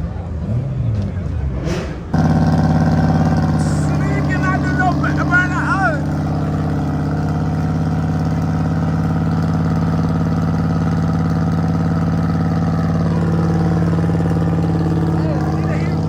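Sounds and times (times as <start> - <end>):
car engine idling: 2.0 - 16.0.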